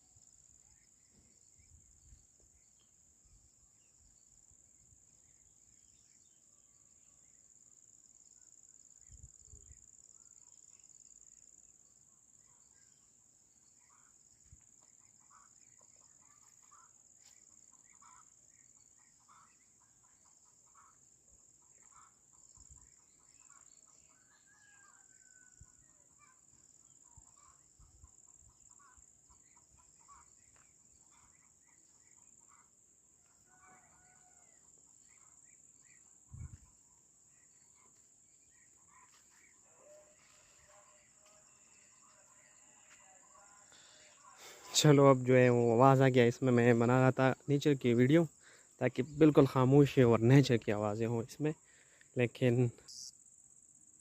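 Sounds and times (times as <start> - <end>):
insect chorus: 0.0 - 54.0
short bird calls: 14.8 - 21.0, 37.4 - 44.9.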